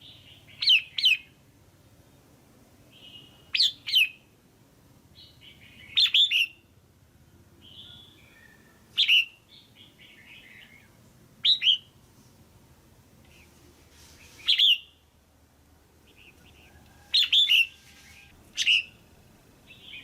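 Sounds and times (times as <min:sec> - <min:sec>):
bird sharp call notes: 0:14.4 - 0:15.0.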